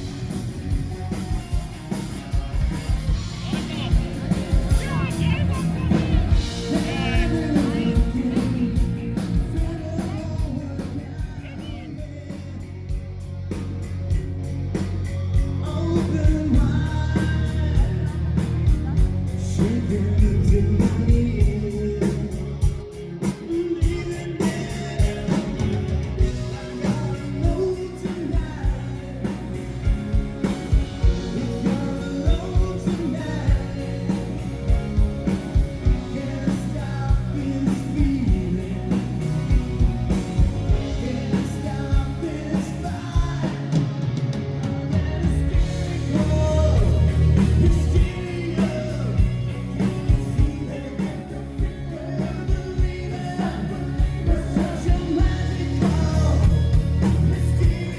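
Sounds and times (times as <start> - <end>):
live rock band playing: 0.0 - 57.9
person singing: 3.4 - 13.0, 40.6 - 57.9.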